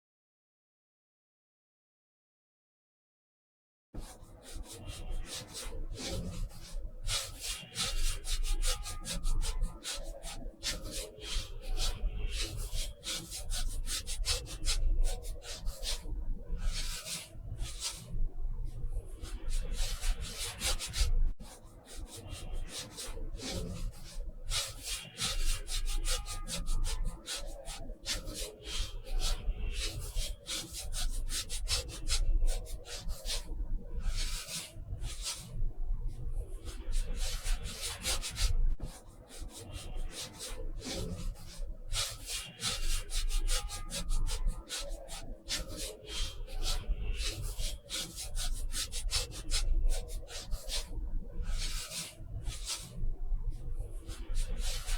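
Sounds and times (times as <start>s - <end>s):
drawing tool scratching paper: 36.7s - 50.9s.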